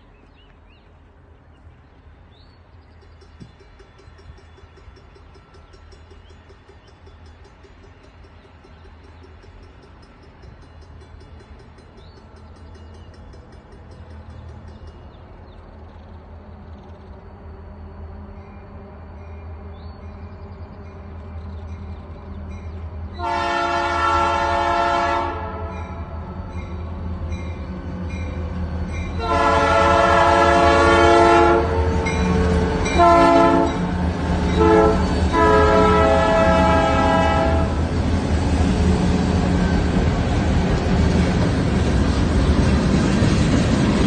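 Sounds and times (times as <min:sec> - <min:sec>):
wheels clattering on rails: 0:02.8 - 0:17.2, 0:30.1 - 0:44.0
train horn blasts: 0:23.1 - 0:26.1, 0:29.2 - 0:37.9.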